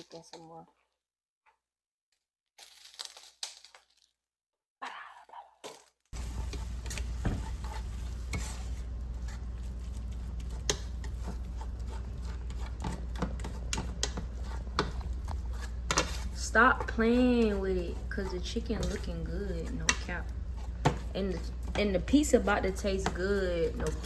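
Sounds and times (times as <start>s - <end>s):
chicken sizzling in a pan: 6.2s - 10.1s
utensil clicking against pan: 10.4s - 15.2s.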